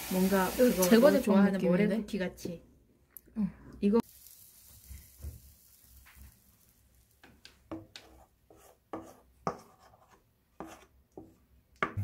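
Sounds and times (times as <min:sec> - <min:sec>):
faint hiss of butter: 0:04.0 - 0:07.3.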